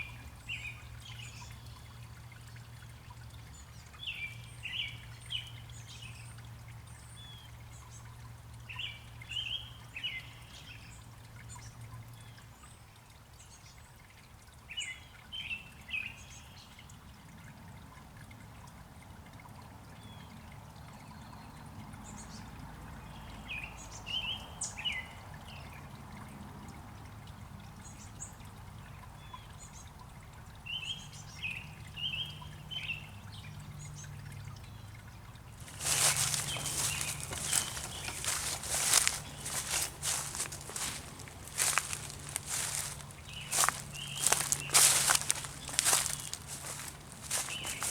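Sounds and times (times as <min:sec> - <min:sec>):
trickling water: 0:00.0 - 0:47.9
bird chirping: 0:35.6 - 0:47.9.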